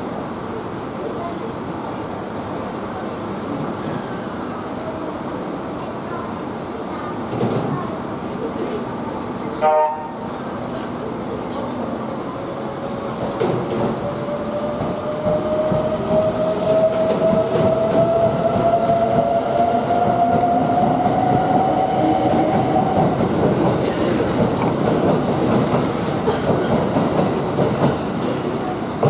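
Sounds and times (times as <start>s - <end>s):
wheels clattering on rails: 22.9s - 29.0s.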